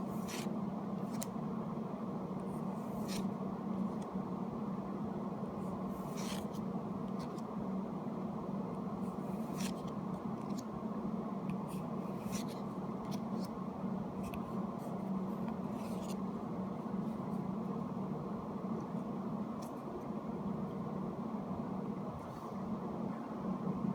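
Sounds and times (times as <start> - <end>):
low background hum: 0.0 - 23.9
cards swishing: 0.1 - 1.3, 2.6 - 4.1, 5.9 - 6.6, 9.1 - 10.7, 11.6 - 13.5, 15.4 - 16.2.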